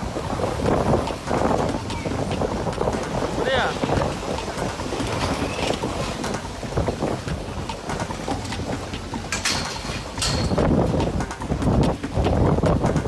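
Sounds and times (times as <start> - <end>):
wind buffeting microphone: 0.0 - 13.0
short knocks and rattles: 9.2 - 12.0.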